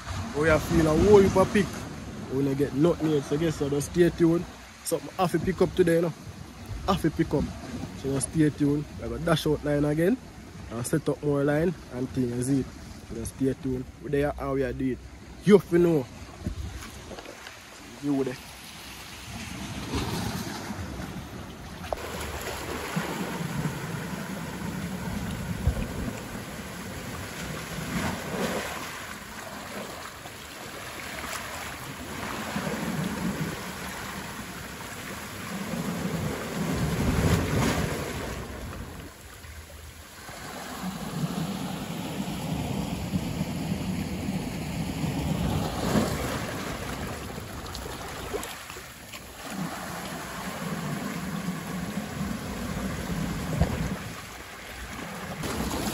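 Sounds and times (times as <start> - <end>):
wind: 0.0 - 55.9
wind gusts: 0.0 - 55.9
sea rushing hiss: 22.0 - 38.5.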